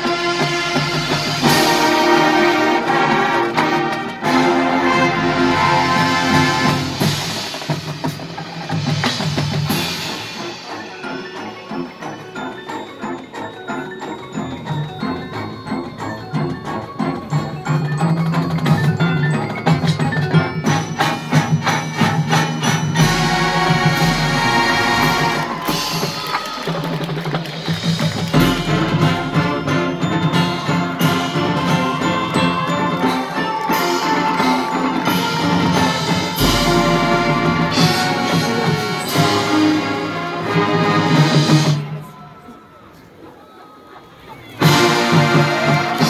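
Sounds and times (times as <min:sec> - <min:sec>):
brass and woodwinds playing chords: 0:00.0 - 0:07.7, 0:20.6 - 0:26.3, 0:28.3 - 0:42.1, 0:44.6 - 0:46.0
mallet percussion notes: 0:00.0 - 0:43.3.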